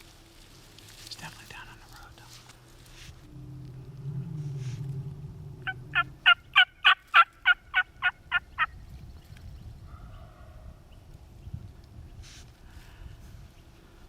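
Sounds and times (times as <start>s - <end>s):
turkey yelping: 5.6s - 8.7s.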